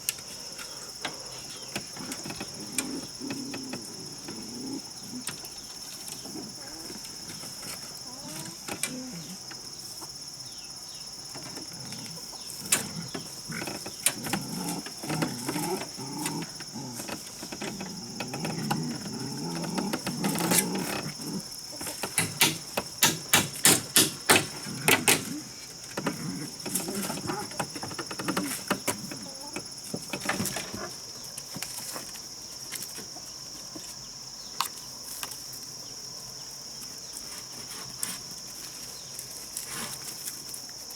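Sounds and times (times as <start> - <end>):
sharp knocks: 22.0 - 25.3.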